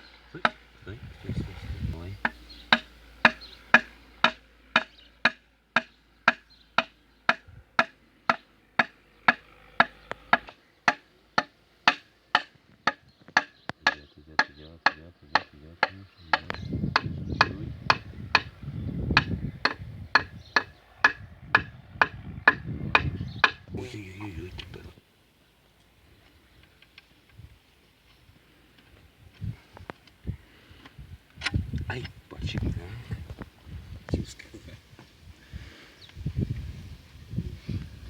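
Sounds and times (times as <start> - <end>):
low rumble: 0.6 - 4.7.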